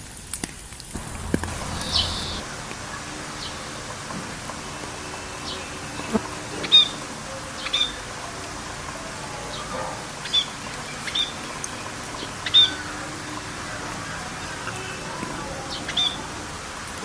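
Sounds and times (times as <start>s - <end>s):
rain hiss: 0.0s - 17.0s
bird calling: 1.0s - 2.4s.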